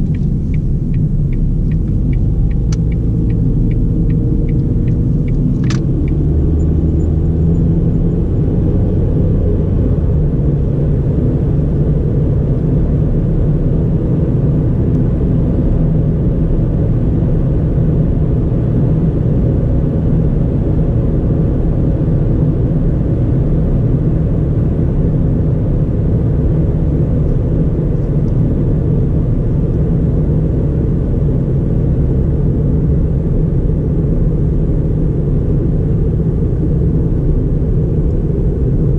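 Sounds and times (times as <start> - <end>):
car engine and tyre drone: 0.0 - 38.9
sharp click: 4.5 - 6.2.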